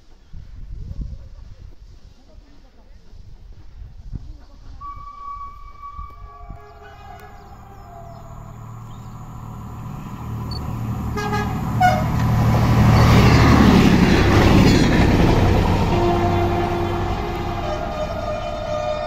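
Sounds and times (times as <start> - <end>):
train whistle toot: 4.8 - 9.2, 11.1 - 12.3, 15.8 - 19.0
train passing: 4.8 - 19.0.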